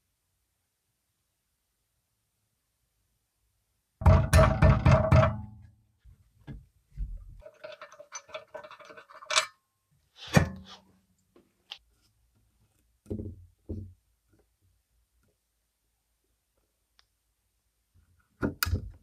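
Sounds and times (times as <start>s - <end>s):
metal tools knocking and clinking: 7.4s - 9.6s.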